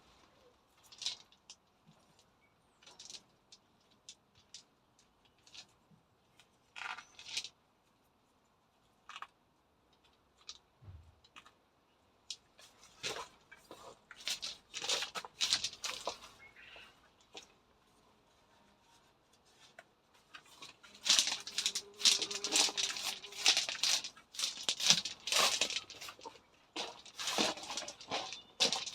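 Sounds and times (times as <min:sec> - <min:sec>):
plants rustling tearing and snapping: 0:20.5 - 0:28.9.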